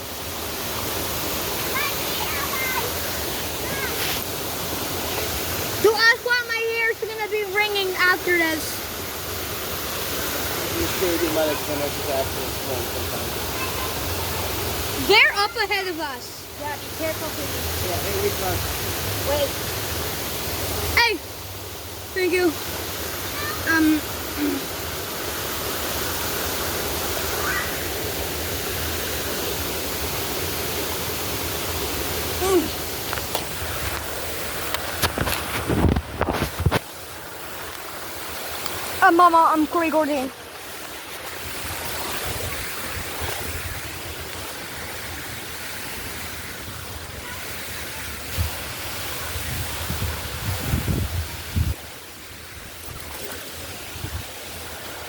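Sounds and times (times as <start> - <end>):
waterfall rushing: 0.0 - 55.0
wind buffeting microphone: 48.3 - 51.8.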